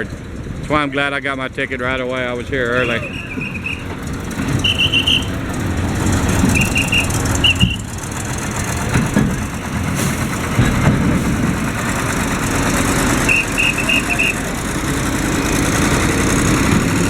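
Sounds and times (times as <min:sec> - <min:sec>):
vehicle engines idling: 0:00.0 - 0:17.0
pea whistle trilling blasts: 0:02.8 - 0:04.0, 0:04.6 - 0:05.4, 0:06.5 - 0:07.9, 0:13.3 - 0:14.5.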